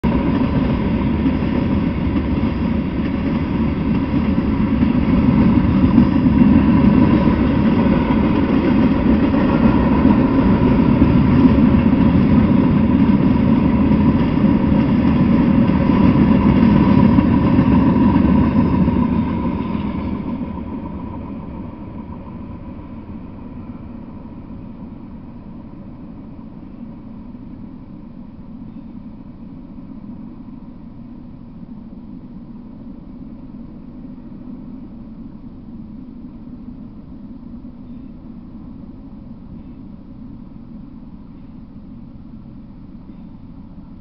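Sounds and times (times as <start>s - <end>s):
train wheels rumbling on rails: 0.0s - 44.0s
faint steady tone: 18.3s - 44.0s.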